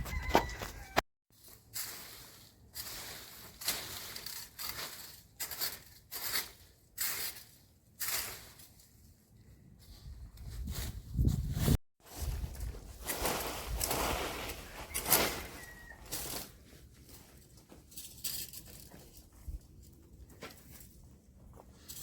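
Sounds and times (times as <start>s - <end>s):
footsteps through vegetation: 0.0s - 5.7s, 9.8s - 17.6s.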